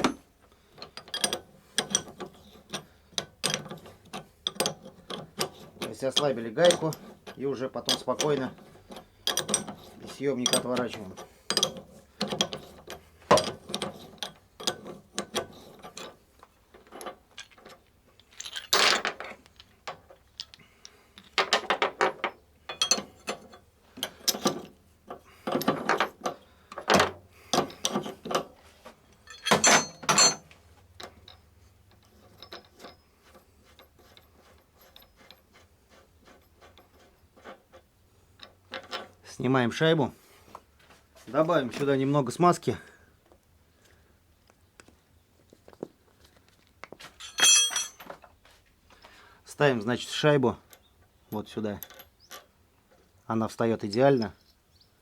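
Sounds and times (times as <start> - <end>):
hand tools clicking and ratcheting: 0.0 - 39.3, 47.1 - 48.3.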